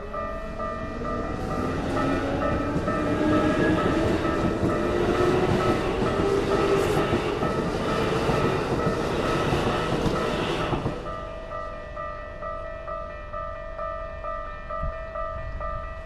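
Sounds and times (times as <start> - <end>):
crossing warning bell ringing: 0.0 - 16.0
electric train rumble and whine: 0.0 - 16.0.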